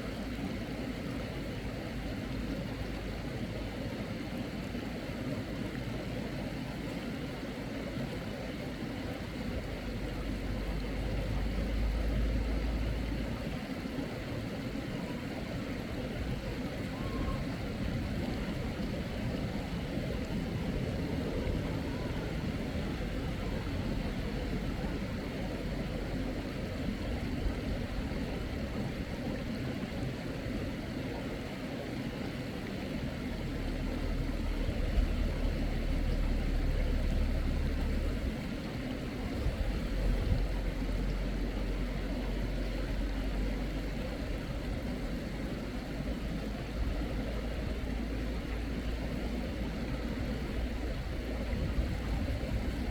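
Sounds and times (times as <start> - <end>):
mountain stream rushing: 0.0 - 52.9.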